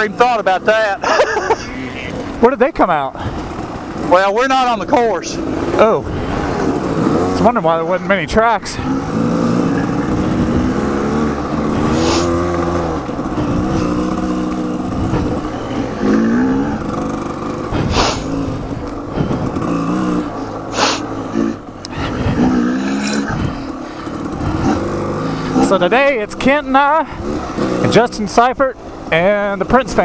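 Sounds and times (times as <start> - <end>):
dirt bike engine revving: 0.0 - 30.0
hissing swishes: 11.7 - 12.6, 17.7 - 18.6, 20.5 - 21.2.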